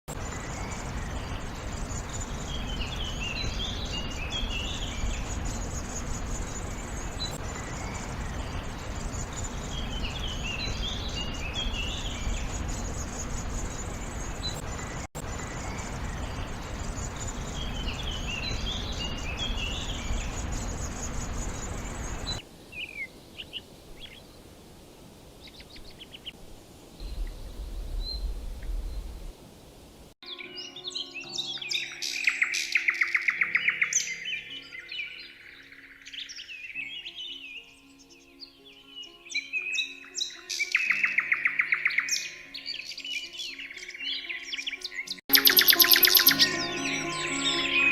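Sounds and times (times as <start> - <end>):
outdoor background hiss: 0.1 - 30.7
short bird chirps: 45.3 - 47.9
songbird singing quick high notes: 45.3 - 47.9.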